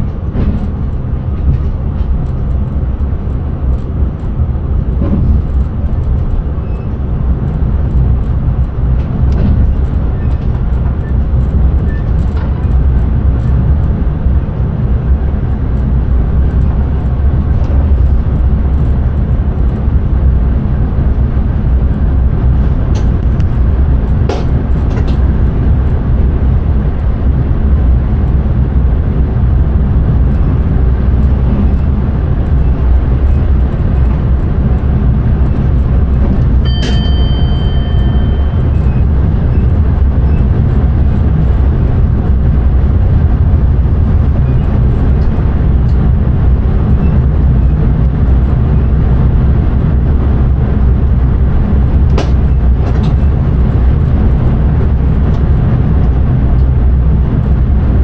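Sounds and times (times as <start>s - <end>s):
train wheels rumbling on rail: 0.0s - 58.0s
sharp click with ringing tone: 36.7s - 38.9s.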